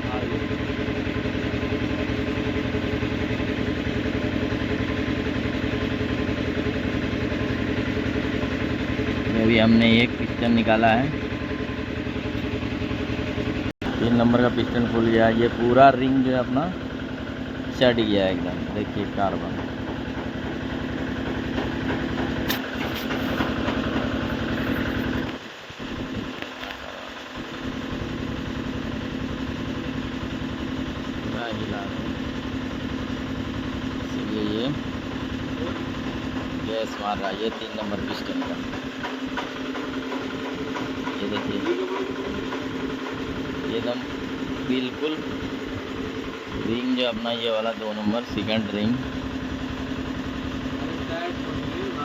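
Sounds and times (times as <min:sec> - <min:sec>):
engine idling: 0:00.0 - 0:52.0
sharp metallic click: 0:22.4 - 0:23.5.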